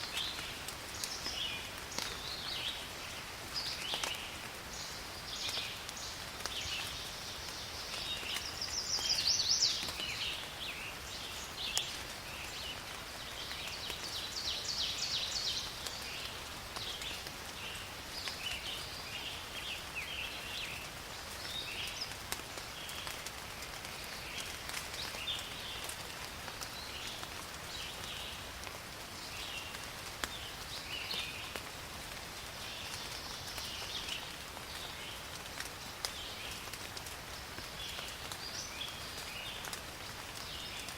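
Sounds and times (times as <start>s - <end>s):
rain falling in forest: 0.0s - 40.9s.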